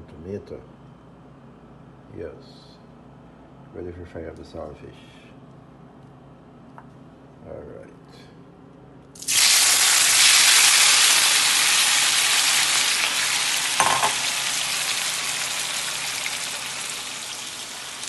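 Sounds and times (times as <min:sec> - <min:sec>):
food sizzling in hot oil: 0:09.2 - 0:18.0.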